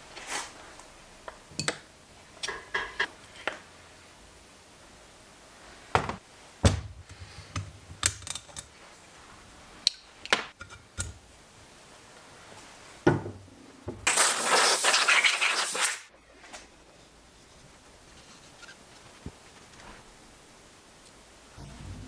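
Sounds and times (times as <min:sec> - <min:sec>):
loud hiss: 0:14.1 - 0:16.1.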